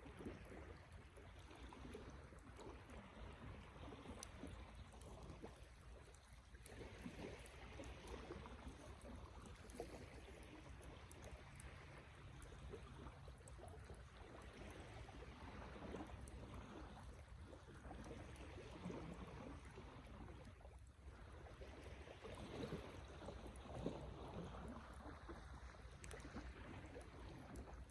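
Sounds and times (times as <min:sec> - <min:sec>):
campfire crackling and popping: 0:03.9 - 0:11.7.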